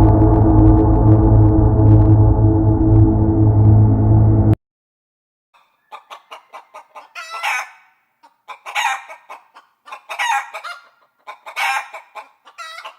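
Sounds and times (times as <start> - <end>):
chicken clucking: 5.6 - 12.9.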